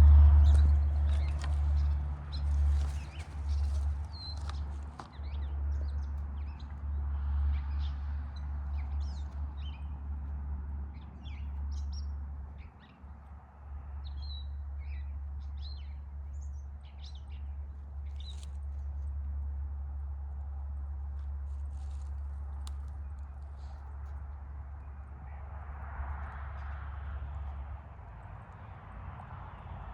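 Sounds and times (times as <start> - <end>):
steady low rumble: 0.0 - 29.9
birds chirping: 0.4 - 9.9.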